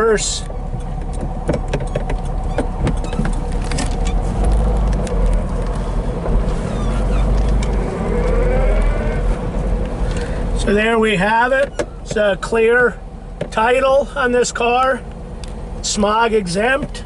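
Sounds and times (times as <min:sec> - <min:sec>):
car engine running in reverse: 0:00.0 - 0:10.8
rising whine: 0:00.0 - 0:10.8.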